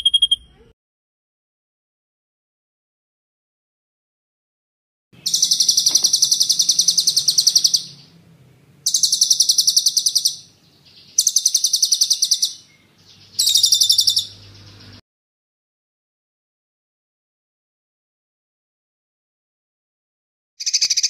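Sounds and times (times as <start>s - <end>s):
songbird rolling trill: 5.2s - 8.2s, 8.8s - 15.0s.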